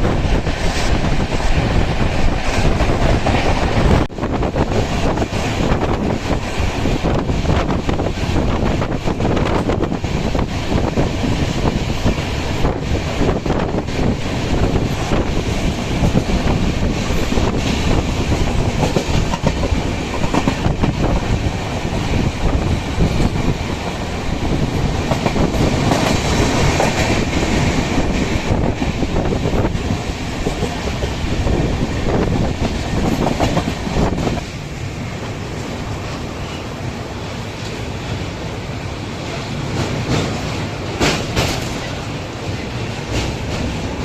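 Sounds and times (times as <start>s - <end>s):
train rumbling: 0.0s - 44.0s
wheels clacking over rails: 12.0s - 34.6s, 39.7s - 44.0s.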